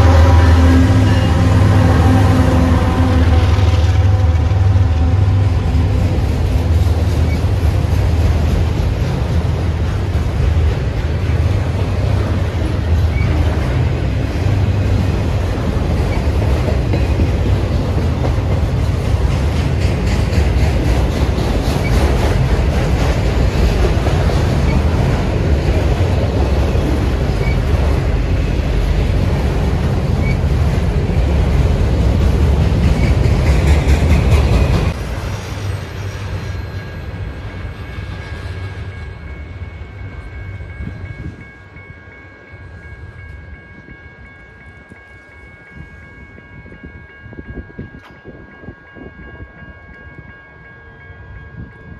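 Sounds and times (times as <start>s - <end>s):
high ringing tones: 0.0s - 6.2s, 35.6s - 51.9s
train wheels rumbling on rails: 0.0s - 51.9s.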